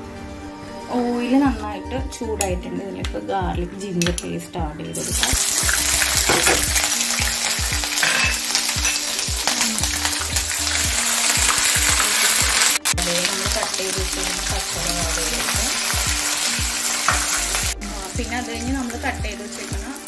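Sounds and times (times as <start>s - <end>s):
paste sizzling in hot oil: 5.0s - 20.0s.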